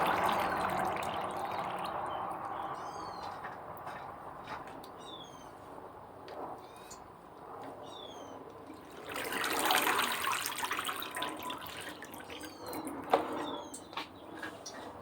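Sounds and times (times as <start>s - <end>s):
water splashing and draining: 0.0s - 2.8s, 8.6s - 13.1s.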